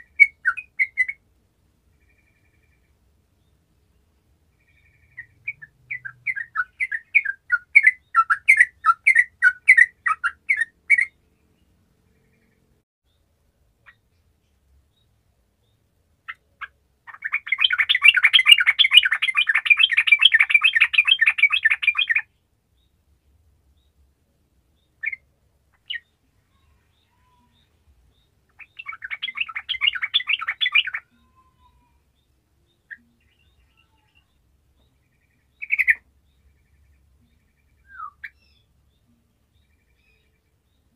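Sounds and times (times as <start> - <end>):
bird calling: 16.3 - 22.3, 28.5 - 32.0, 35.6 - 36.0, 37.8 - 38.6
bubbling chattering bird song: 16.6 - 22.2, 28.6 - 31.4.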